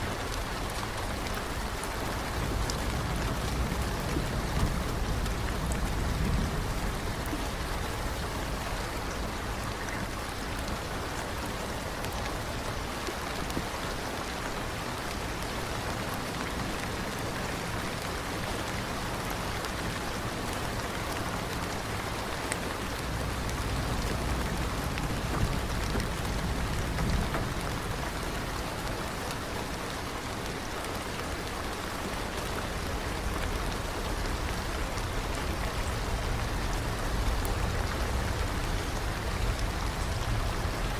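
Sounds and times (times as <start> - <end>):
rain hiss: 0.0 - 40.9
rain drop ticks: 0.2 - 10.8, 21.1 - 29.5, 32.3 - 40.9
low rumble: 22.9 - 28.9, 32.7 - 40.9.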